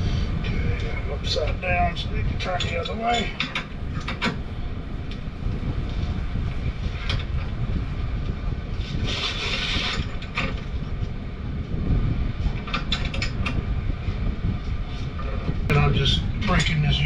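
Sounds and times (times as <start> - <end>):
steady low rumble: 0.0 - 17.0
scraping hiss: 8.8 - 10.5.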